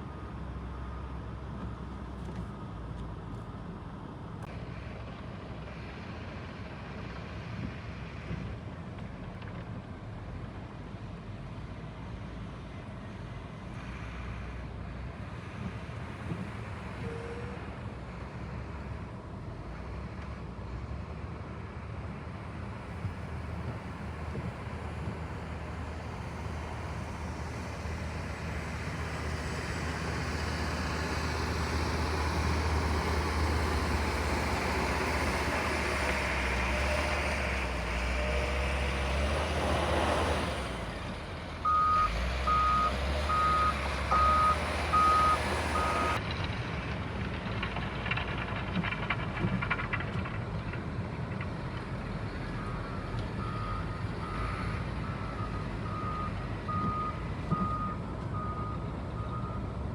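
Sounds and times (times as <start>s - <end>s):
heavy vehicle engine running: 0.0s - 59.9s
reversing alarm beeping: 41.6s - 46.2s.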